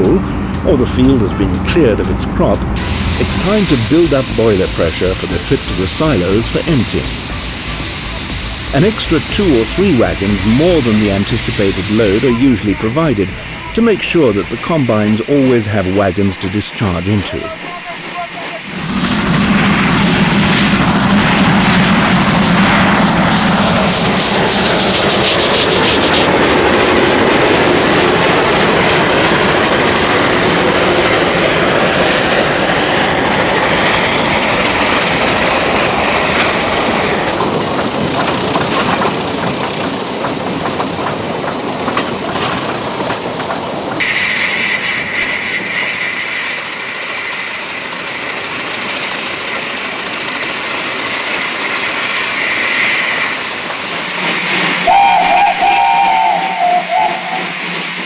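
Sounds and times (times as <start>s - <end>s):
steady high tone: 0.0s - 17.6s, 54.9s - 57.8s
steam hissing: 0.0s - 58.0s
wheels clattering over rail joints: 17.4s - 54.9s.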